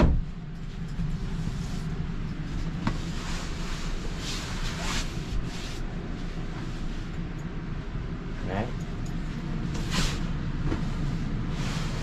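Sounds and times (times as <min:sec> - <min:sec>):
bunk dropping with loud thud: 0:00.0 - 0:00.3
steady low rumble: 0:00.0 - 0:12.0
soft rustling: 0:00.6 - 0:07.2.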